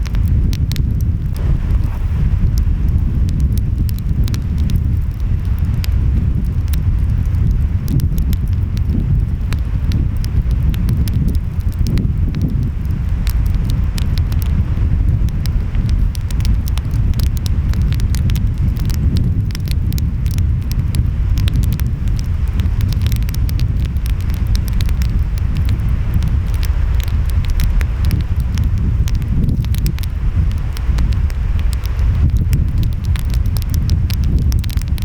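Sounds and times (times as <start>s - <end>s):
wind: 0.0s - 35.0s
wood fire crackling and popping: 0.0s - 35.0s.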